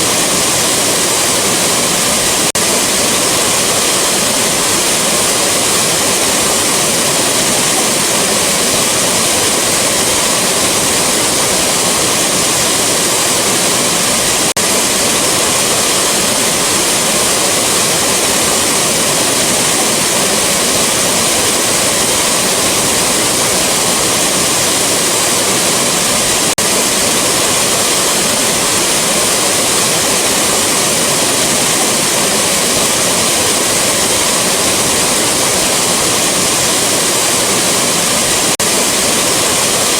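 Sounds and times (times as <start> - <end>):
waterfall roar: 0.0 - 39.9.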